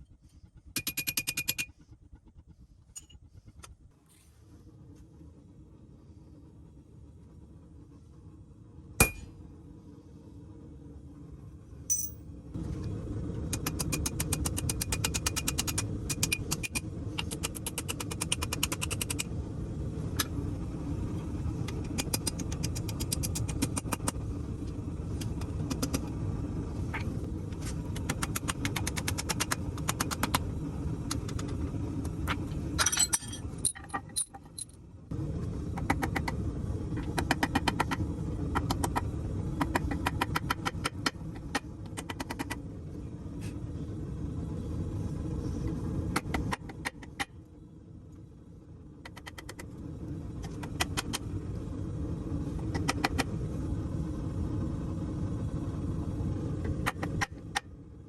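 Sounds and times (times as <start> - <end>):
metal clinks: 11.9 - 12.2, 32.8 - 34.8
metallic hammer taps: 11.9 - 12.2.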